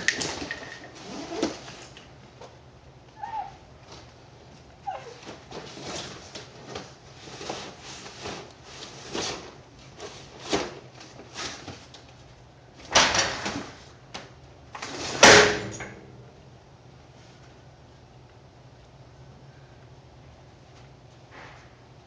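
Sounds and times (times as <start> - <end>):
cardboard rustling and scraping: 0.3 - 2.0, 5.1 - 11.9.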